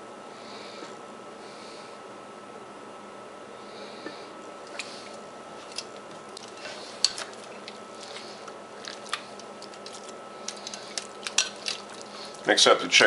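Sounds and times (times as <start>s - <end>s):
utensils clinking against dishes: 9.8s - 12.4s.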